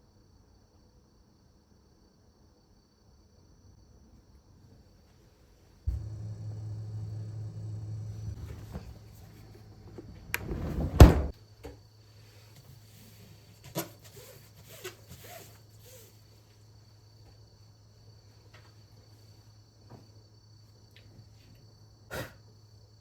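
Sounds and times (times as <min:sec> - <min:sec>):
heavy thud: 0:05.9 - 0:09.0, 0:10.3 - 0:11.3.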